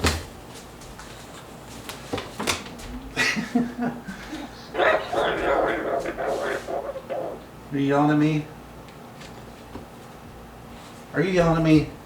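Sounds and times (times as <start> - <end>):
parrot muttering: 4.4 - 7.6.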